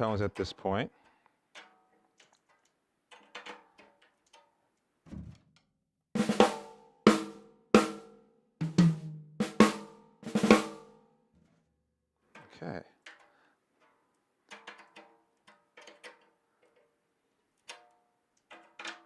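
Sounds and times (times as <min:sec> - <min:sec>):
snare drum strokes: 0:08.6 - 0:10.8.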